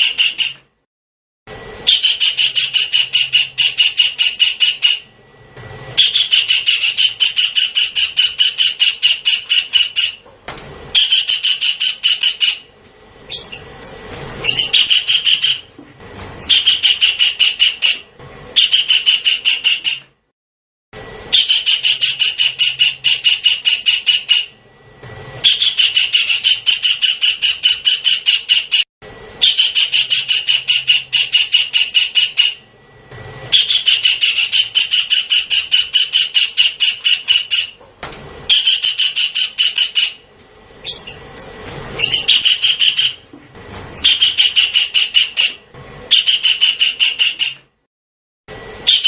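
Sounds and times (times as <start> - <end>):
kingfisher rattling call: 6.0 - 10.2, 10.9 - 12.7, 13.3 - 15.7, 33.5 - 37.8, 40.8 - 43.2, 43.9 - 47.6.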